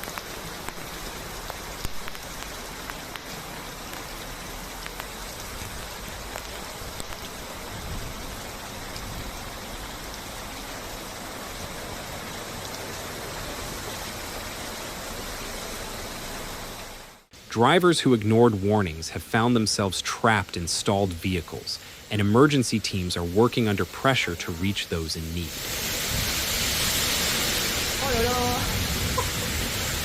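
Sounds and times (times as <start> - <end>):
rain drop ticks: 0.0 - 13.0, 17.5 - 25.4
rain falling: 0.0 - 30.0.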